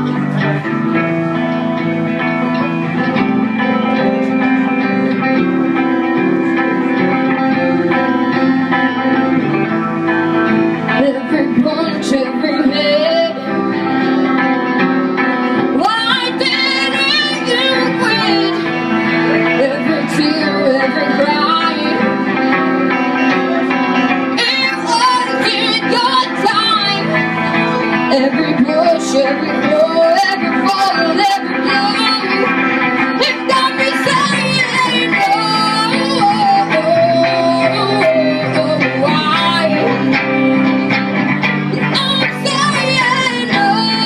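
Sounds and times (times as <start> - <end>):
guitars holding chords: 0.0 - 44.0.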